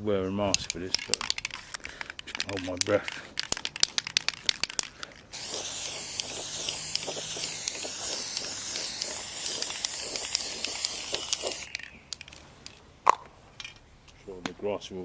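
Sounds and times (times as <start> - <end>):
aerosol can spraying hiss: 5.3 - 11.7.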